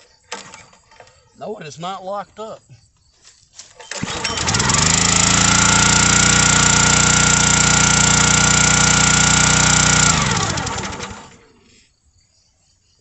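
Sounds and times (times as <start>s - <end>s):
small engine running fast: 3.9s - 11.6s.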